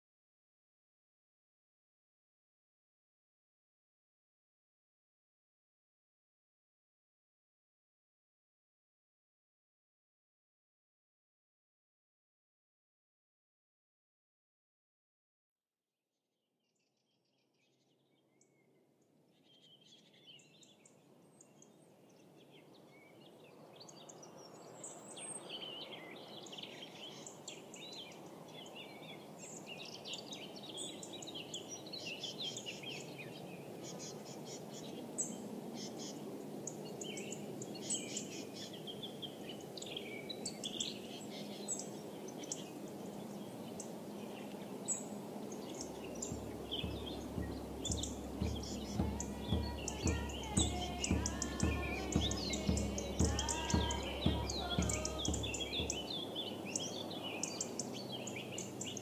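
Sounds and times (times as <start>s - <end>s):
small birds chirping: 16.9s - 59.0s
low outdoor rush: 44.5s - 59.0s.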